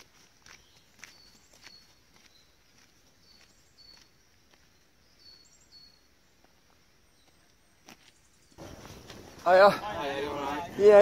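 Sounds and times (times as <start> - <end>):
small bird high chirps: 3.2 - 6.1.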